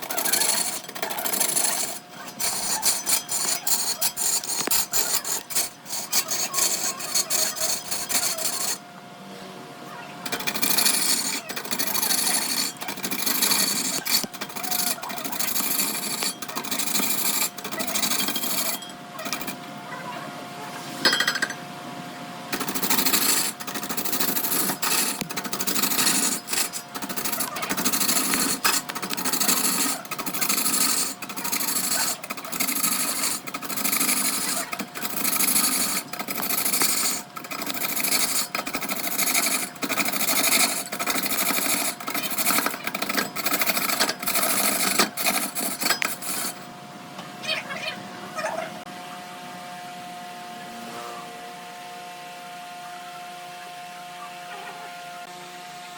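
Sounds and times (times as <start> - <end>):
tool scraping wood on lathe: 0.0 - 8.8, 10.3 - 19.6, 22.5 - 46.7
lathe humming: 0.0 - 9.0, 10.2 - 19.8, 22.5 - 46.9.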